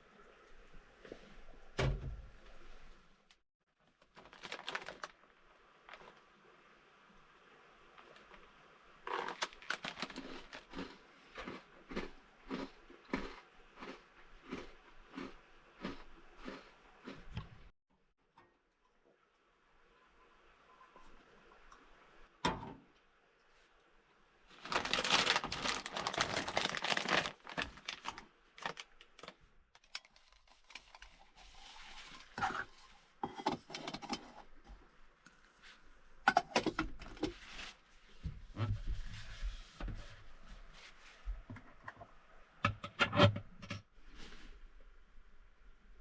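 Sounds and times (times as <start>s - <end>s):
rustling: 3.9s - 6.3s, 24.5s - 33.2s.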